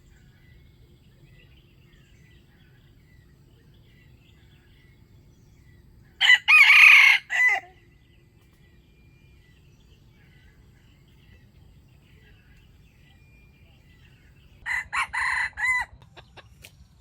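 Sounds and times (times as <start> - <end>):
faint chirping: 0.0 - 14.7
rooster crowing: 6.2 - 7.8, 14.6 - 16.0.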